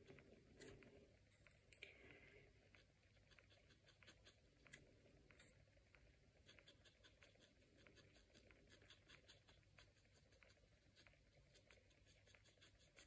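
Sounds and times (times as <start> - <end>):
painting tool scratching on paper: 2.7 - 5.6, 6.3 - 13.0.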